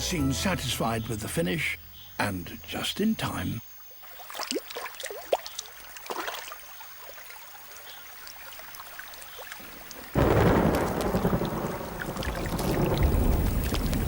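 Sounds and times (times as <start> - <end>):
heavy rain downpour: 9.6 - 14.0.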